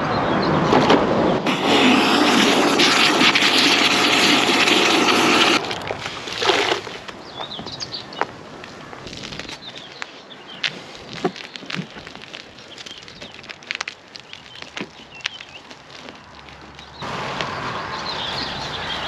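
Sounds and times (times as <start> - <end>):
detailing machine hissing: 1.5 - 5.7
birds chirping faintly: 6.8 - 19.0.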